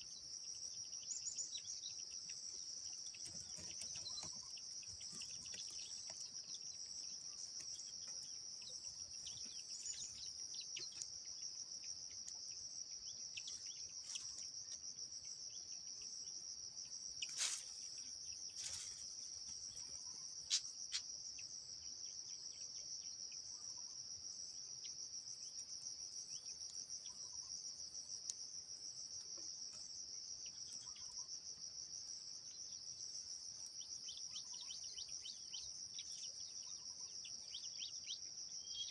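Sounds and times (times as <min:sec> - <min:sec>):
high-pitched insect trill: 0:17.1 - 0:38.9.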